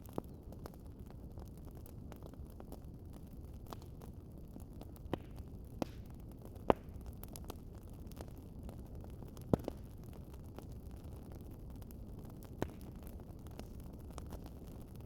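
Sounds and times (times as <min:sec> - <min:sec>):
wood fire crackling: 0:00.0 - 0:15.0
sharp pops from fire: 0:04.9 - 0:08.3, 0:09.3 - 0:10.0, 0:12.4 - 0:14.6.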